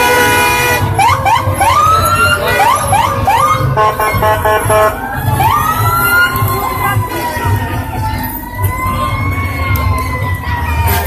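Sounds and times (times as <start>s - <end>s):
horn blasts: 0.0s - 9.0s, 10.7s - 11.0s
fire truck siren whooping: 0.0s - 11.0s
truck engines rumbling: 0.0s - 11.0s.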